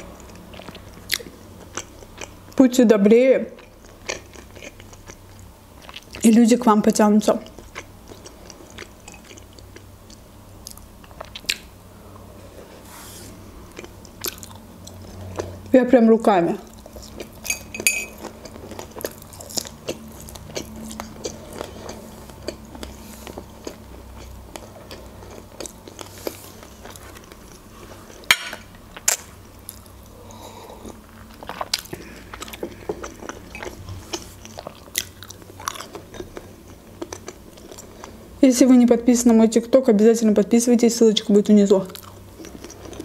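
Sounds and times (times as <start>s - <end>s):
low steady hum: 0.0s - 43.0s
chewing and biting food: 7.4s - 11.7s, 13.7s - 15.7s, 16.6s - 28.3s, 30.8s - 38.2s, 41.9s - 43.0s.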